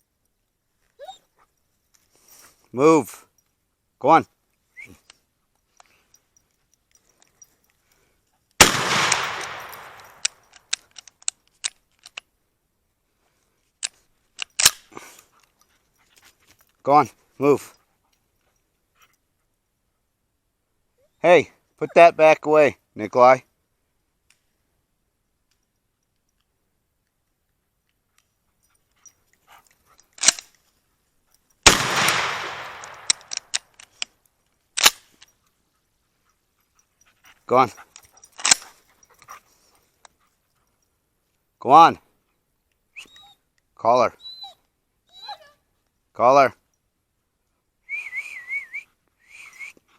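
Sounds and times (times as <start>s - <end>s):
gunshot with echo: 8.6s - 10.2s, 31.7s - 33.4s
short sharp cracks: 8.6s - 11.8s, 31.6s - 34.1s
sharp mechanical clicks: 31.7s - 34.1s.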